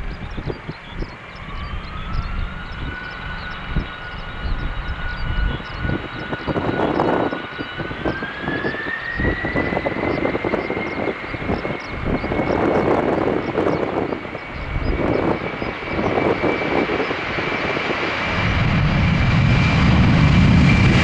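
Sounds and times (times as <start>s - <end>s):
aircraft turbine engine whining: 0.0s - 21.0s
wind buffeting microphone: 0.0s - 21.0s.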